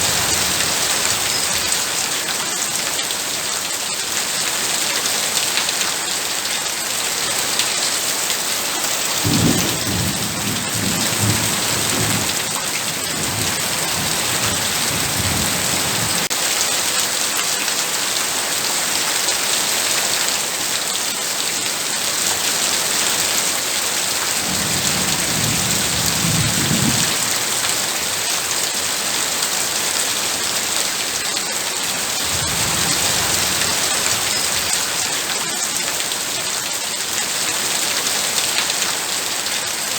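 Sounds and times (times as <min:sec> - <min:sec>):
heavy rain falling: 0:00.0 - 0:39.9
thunder rumbling: 0:09.2 - 0:16.3, 0:24.4 - 0:27.5, 0:32.2 - 0:35.2.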